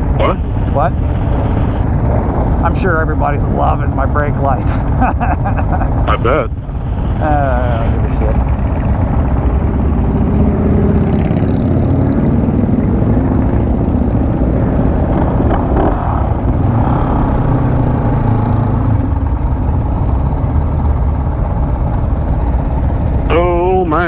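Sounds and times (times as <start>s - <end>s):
motorcycle engine running low speed: 5.8s - 24.0s.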